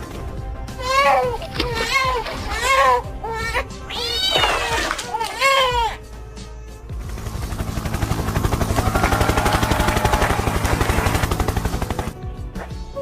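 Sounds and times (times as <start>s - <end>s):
rapid mechanical chopping: 7.1s - 12.2s.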